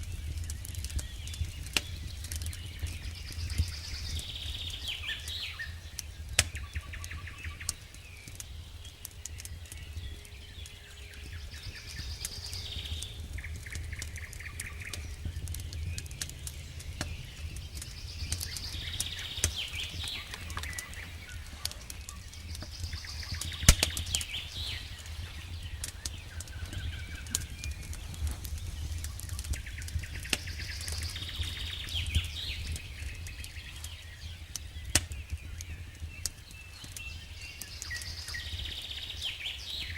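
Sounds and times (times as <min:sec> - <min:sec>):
campfire crackling and popping: 0:00.0 - 0:39.9
bird calling: 0:17.0 - 0:27.8.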